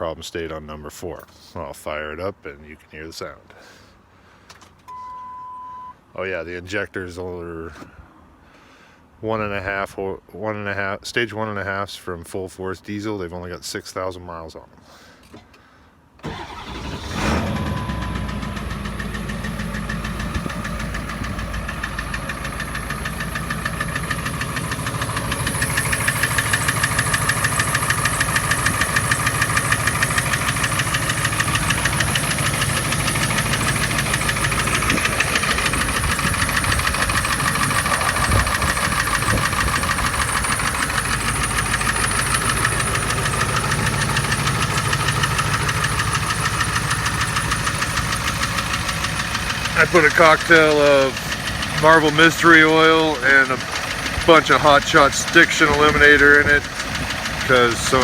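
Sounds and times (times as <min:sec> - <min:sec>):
diesel engine starting and idling: 0:16.2 - 0:58.0
engine knock: 0:17.6 - 0:58.0.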